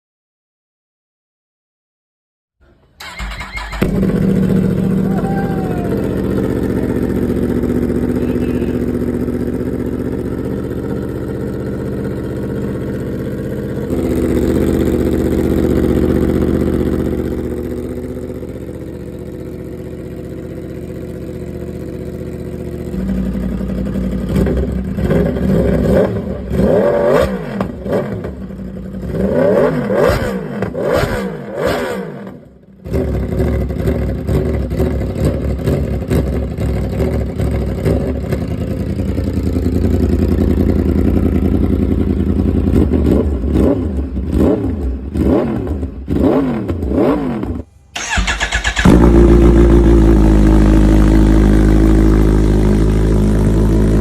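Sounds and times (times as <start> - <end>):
motorcycle engines revving: 3.0 - 54.0.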